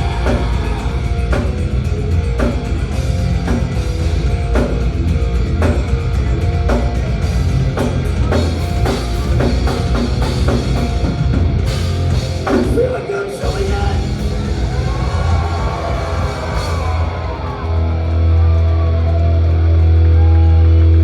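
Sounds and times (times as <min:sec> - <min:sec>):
metal band playing live: 0:00.0 - 0:21.0
heavy drum hits: 0:13.5 - 0:18.1.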